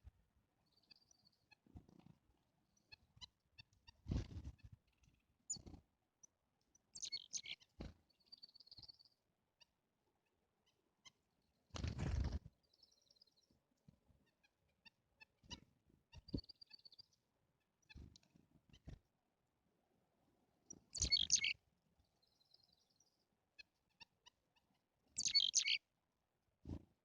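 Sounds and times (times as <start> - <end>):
songbirds chirping: 0.5 - 19.0, 20.1 - 25.8
bird trills: 7.0 - 7.7, 21.0 - 21.6, 25.2 - 25.8.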